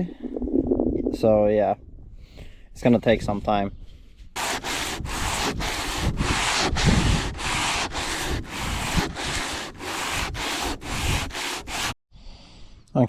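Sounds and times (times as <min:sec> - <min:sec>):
sandpaper rubbing by hand: 0:04.4 - 0:12.0.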